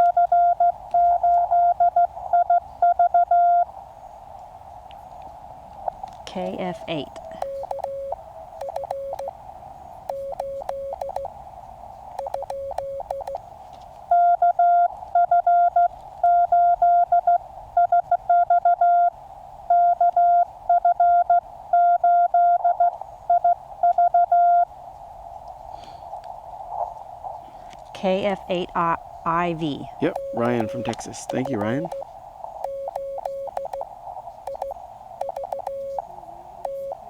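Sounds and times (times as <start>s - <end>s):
weak morse code signal: 0.0s - 3.7s, 5.8s - 9.4s, 10.0s - 11.4s, 12.2s - 13.4s, 14.1s - 24.7s, 28.0s - 37.0s
loud high morse tone: 6.3s - 9.3s, 29.3s - 32.0s
radio receiver hiss: 29.6s - 37.0s.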